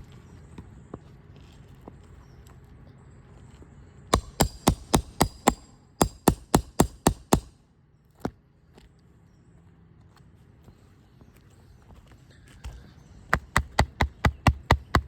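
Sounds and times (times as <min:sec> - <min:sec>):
hammer striking metal: 0:04.1 - 0:07.5.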